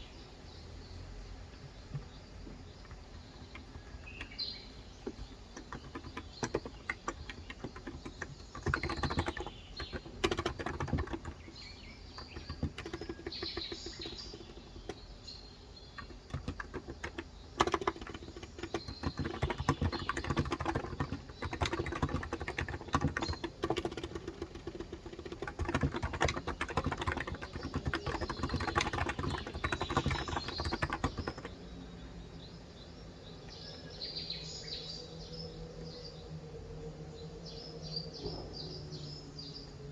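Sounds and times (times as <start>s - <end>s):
birds chirping: 0.0s - 39.9s
keyboard typing: 1.7s - 15.2s, 15.9s - 31.6s.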